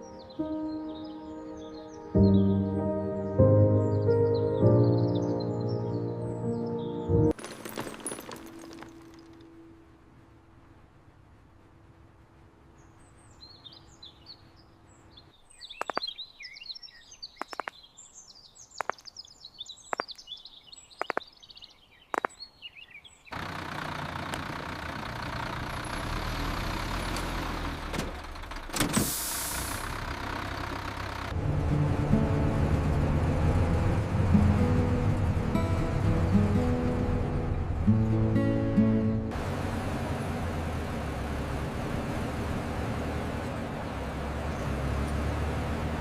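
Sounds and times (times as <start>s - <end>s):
birds chirping: 0.0s - 7.3s, 12.6s - 23.5s, 43.4s - 46.0s
sharp ticks: 15.8s - 16.1s, 17.4s - 17.8s, 18.8s - 19.2s, 19.9s - 20.3s, 21.0s - 21.3s, 22.1s - 22.4s
traffic rushing: 23.3s - 46.0s.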